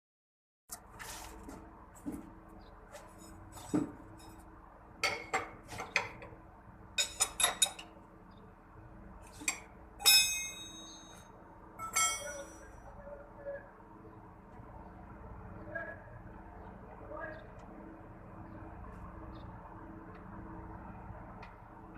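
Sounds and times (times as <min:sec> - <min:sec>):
metal tools clinking: 0:09.4 - 0:11.2, 0:11.8 - 0:12.6
ringing metal clanks: 0:09.5 - 0:11.2, 0:11.8 - 0:12.7.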